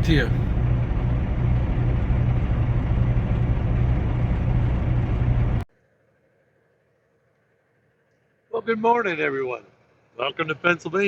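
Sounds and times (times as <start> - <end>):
diesel truck engine idling: 0.0 - 5.6.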